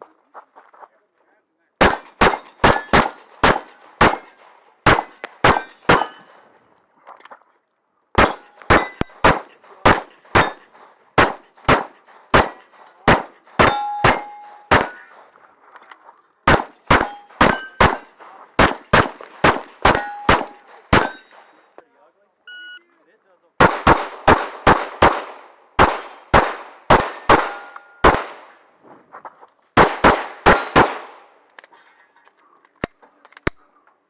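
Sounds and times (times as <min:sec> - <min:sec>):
pistol shots: 0:01.8 - 0:06.7, 0:08.2 - 0:21.8, 0:23.6 - 0:31.8
steel targets ringing: 0:01.9 - 0:06.6, 0:08.2 - 0:10.8, 0:12.4 - 0:15.3, 0:16.5 - 0:21.7, 0:27.1 - 0:28.4.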